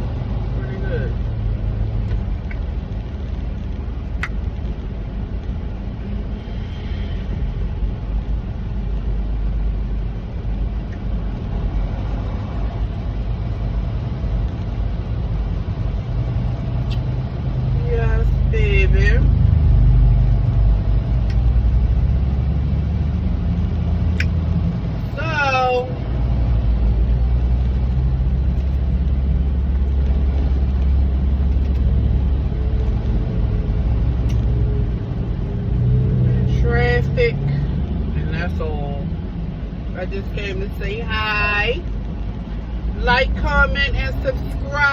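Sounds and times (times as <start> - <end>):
road noise: 0.0 - 44.9
truck engine drone: 0.0 - 44.9.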